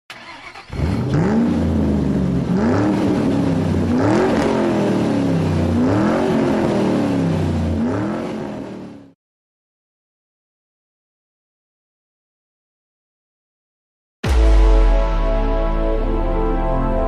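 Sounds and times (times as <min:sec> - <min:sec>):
car engine revving: 0:00.1 - 0:09.2
steady low drone: 0:14.3 - 0:17.0.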